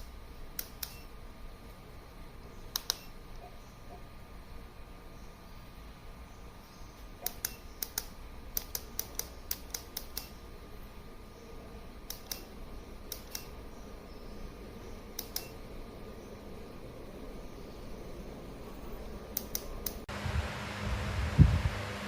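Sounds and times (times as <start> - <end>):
sharp clicks: 0.0 - 1.2, 2.7 - 3.5, 7.2 - 10.4, 12.0 - 13.6, 15.1 - 15.6, 19.3 - 20.1
steady low hum: 0.0 - 22.0.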